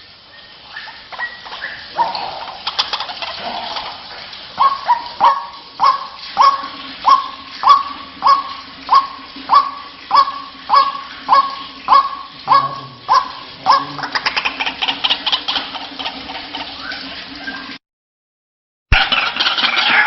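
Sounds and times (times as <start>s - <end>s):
waterhen calling: 0.0s - 17.8s, 18.9s - 20.0s.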